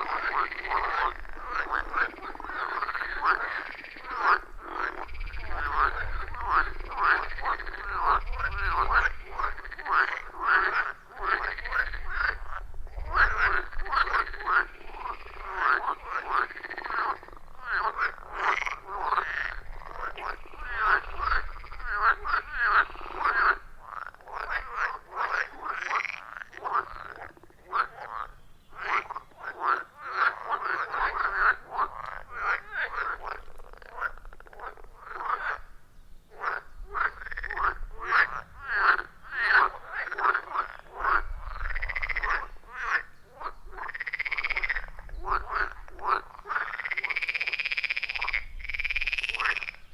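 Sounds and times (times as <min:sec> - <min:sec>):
frogs croaking: 0:00.0 - 0:49.9.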